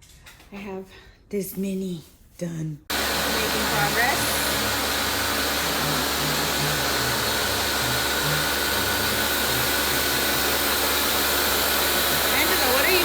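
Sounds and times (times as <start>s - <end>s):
loud rushing fan noise: 2.9s - 13.0s.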